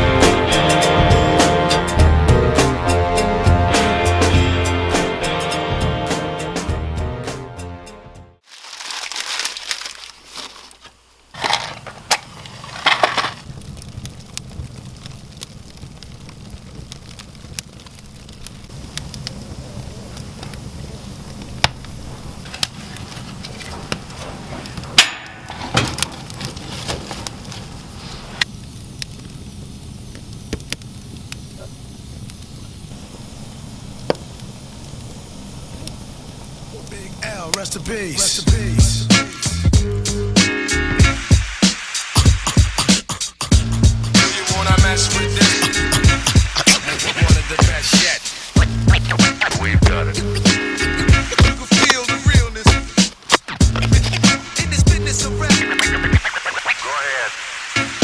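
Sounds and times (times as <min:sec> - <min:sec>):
skis swishing on snow: 0:08.4 - 0:13.5, 0:26.1 - 0:28.4, 0:44.1 - 0:57.7
sharp clicks and cracks: 0:08.6 - 0:27.7, 0:28.4 - 0:31.6, 0:44.1 - 0:56.8.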